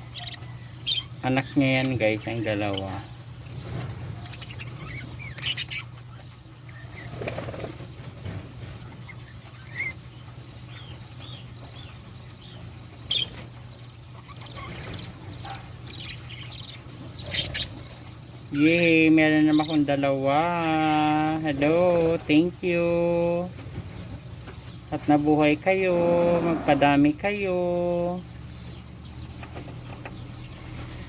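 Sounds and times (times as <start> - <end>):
budgerigars chirping: 0.0 - 23.2, 26.8 - 31.0
steady low hum: 0.0 - 31.0
wing flapping: 6.9 - 8.9.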